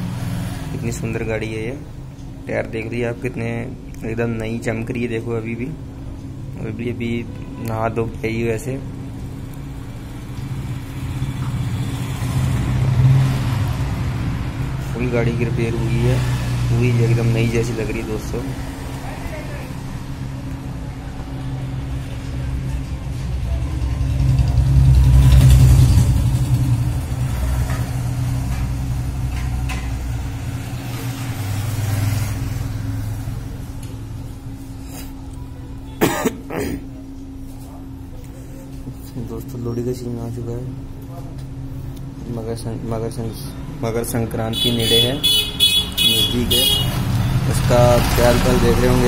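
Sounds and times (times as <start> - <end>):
vehicle engine humming: 0.0 - 36.0, 36.9 - 49.0
vehicle engine idling: 16.9 - 31.1.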